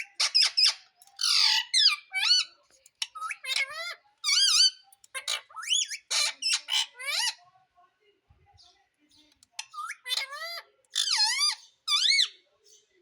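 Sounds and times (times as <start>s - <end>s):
parakeet squawking: 0.0s - 7.4s, 9.6s - 12.4s.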